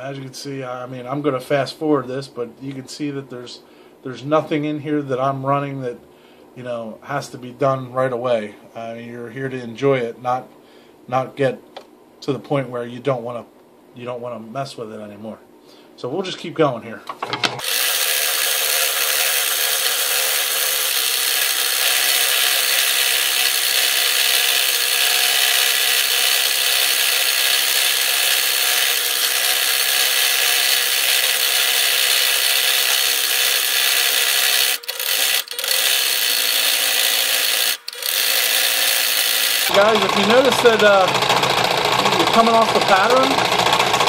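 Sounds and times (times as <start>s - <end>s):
scroll saw cutting wood: 17.6s - 44.0s.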